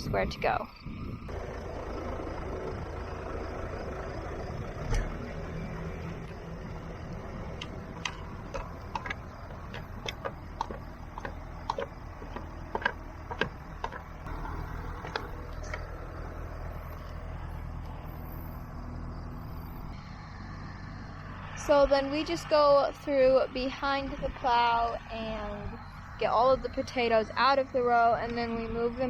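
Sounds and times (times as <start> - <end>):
tractor engine running: 0.0 - 29.0
sharp clicks and knocks: 7.5 - 15.9.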